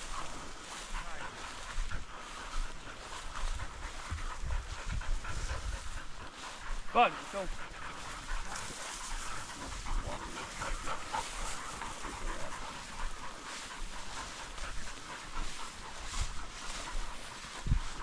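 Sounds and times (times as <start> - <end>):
dog breathing and moving: 0.0 - 18.0
scratchy outdoor noise: 0.0 - 18.0.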